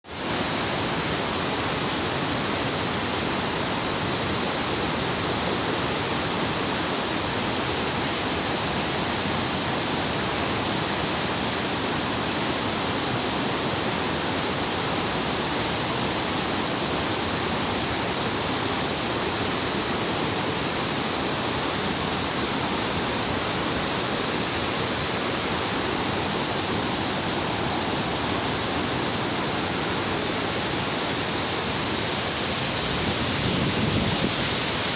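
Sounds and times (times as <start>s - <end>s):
water rushing through spillway: 0.1s - 34.9s.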